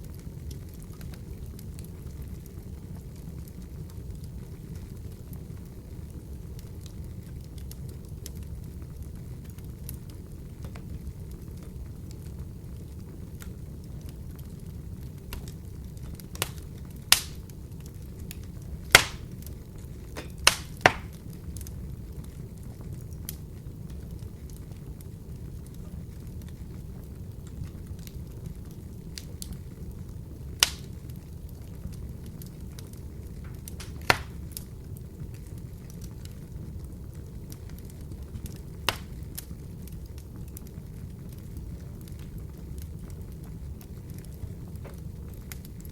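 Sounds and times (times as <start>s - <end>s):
burning wood crackling and popping: 0.0s - 45.9s
fire rumbling: 0.0s - 45.9s
sharp loud fire pops: 18.9s - 19.3s, 20.2s - 21.2s, 33.5s - 34.4s, 38.9s - 39.1s.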